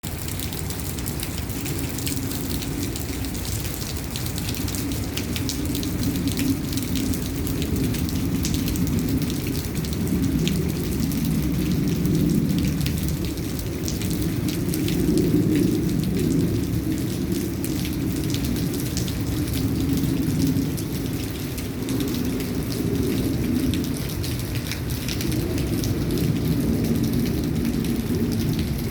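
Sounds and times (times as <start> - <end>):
rain drops clicking: 0.0 - 28.9.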